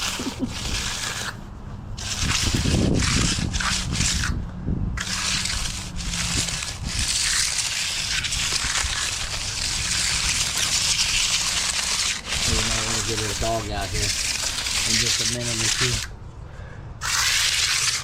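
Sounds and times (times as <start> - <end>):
wet concrete sloshing: 5.0 - 16.1, 17.0 - 18.0.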